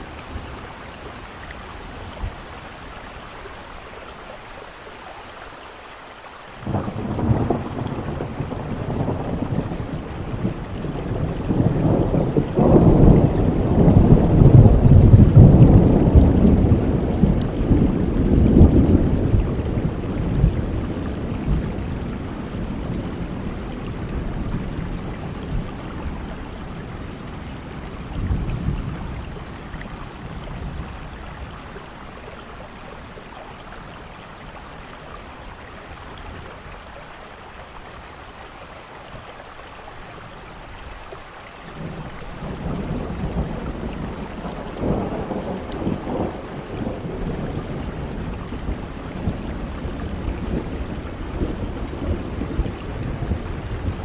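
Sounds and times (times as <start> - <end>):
rain falling on a roof: 0.0 - 54.0
rolling thunder: 6.6 - 31.8, 41.7 - 54.0.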